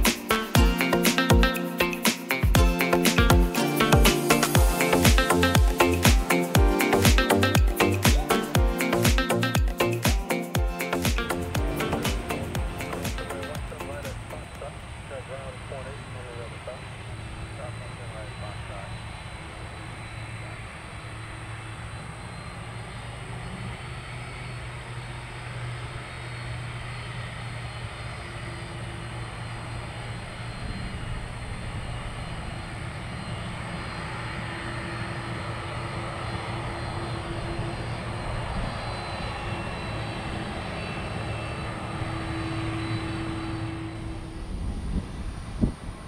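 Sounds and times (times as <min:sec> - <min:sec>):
jet engines running: 0:00.0 - 0:46.0
faint high whine: 0:11.4 - 0:46.0.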